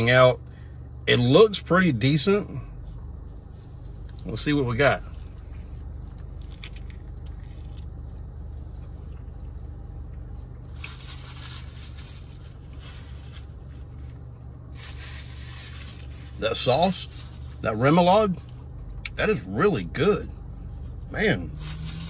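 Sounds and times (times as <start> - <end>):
low car cabin hum: 0.0 - 22.0
man chewing food: 5.3 - 10.8
paper wrapper rustling: 10.7 - 14.1.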